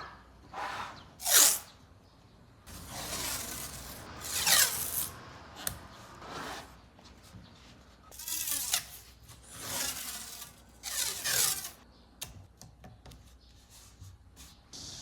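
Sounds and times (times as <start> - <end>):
hand tool scraping wood: 8.1 - 11.8.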